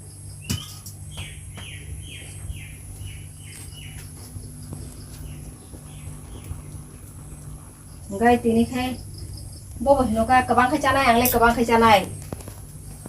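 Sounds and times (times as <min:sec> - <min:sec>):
low hum: 0:00.0 - 0:13.0
bird chirping: 0:00.4 - 0:09.8.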